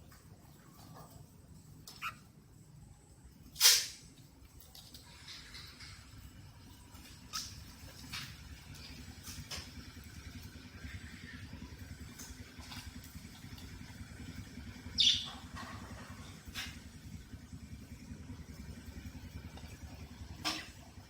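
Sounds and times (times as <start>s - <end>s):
steady low hum: 0.0s - 21.0s
cockatiel chirping: 15.0s - 15.3s.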